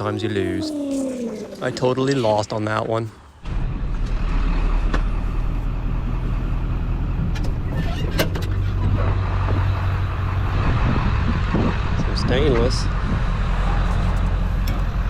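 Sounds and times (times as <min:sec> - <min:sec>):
road noise: 0:00.0 - 0:15.0
vehicle engine hum: 0:03.4 - 0:15.0.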